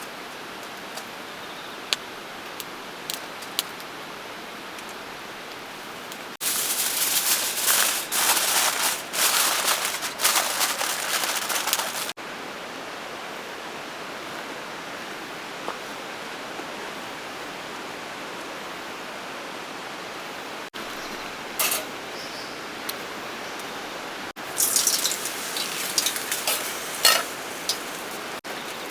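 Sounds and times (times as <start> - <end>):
loud rustling: 6.4 - 12.2, 24.6 - 28.9
water hissing: 24.4 - 28.9.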